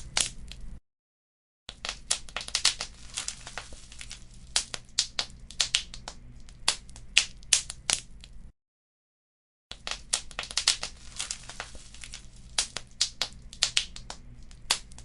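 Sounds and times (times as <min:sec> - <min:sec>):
wood fire crackling and popping: 0:00.0 - 0:00.8, 0:01.7 - 0:08.5, 0:09.7 - 0:15.0
low steady hiss: 0:02.2 - 0:08.5, 0:10.0 - 0:15.0.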